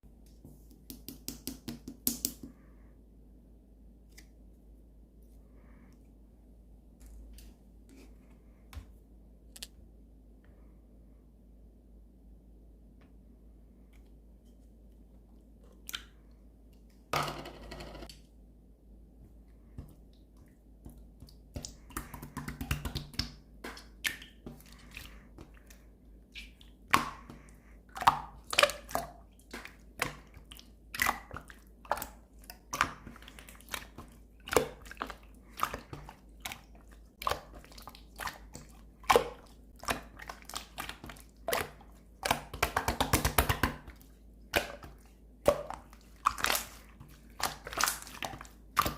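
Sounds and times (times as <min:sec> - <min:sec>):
slime squishing with wet pops: 0:19.7 - 0:48.9.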